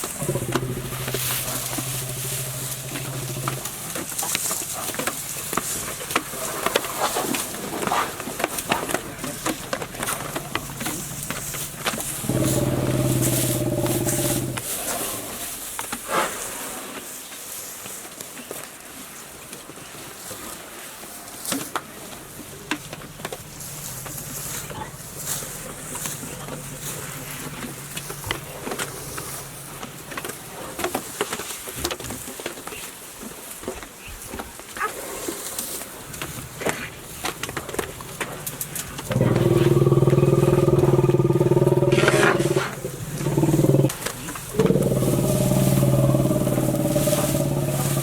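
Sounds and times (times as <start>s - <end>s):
elephant trumpeting: 0.0s - 15.6s, 22.2s - 30.2s, 36.8s - 48.0s
rustling: 0.0s - 18.7s, 20.2s - 48.0s
faint low hum: 22.1s - 30.7s.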